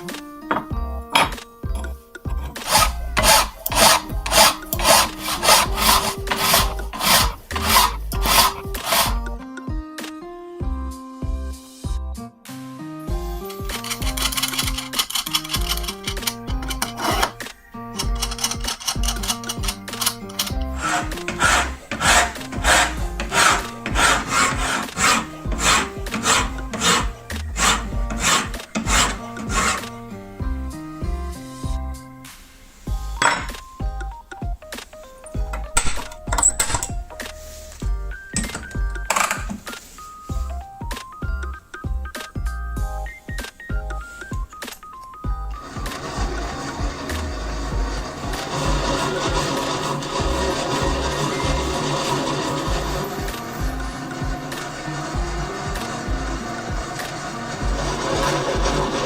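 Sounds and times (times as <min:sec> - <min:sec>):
background music: 0:00.0 - 0:59.0
hand tool rasping back and forth: 0:00.5 - 0:09.3, 0:13.2 - 0:30.0, 0:33.0 - 0:33.6, 0:45.5 - 0:59.0.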